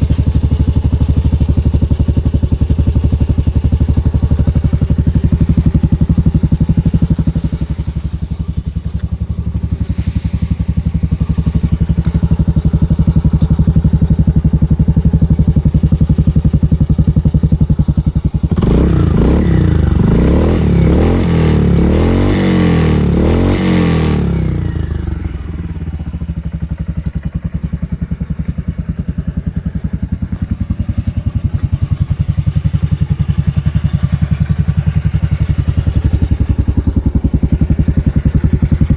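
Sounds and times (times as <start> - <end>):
engine revving: 0.0 - 26.8
scooter engine idling: 0.0 - 38.9.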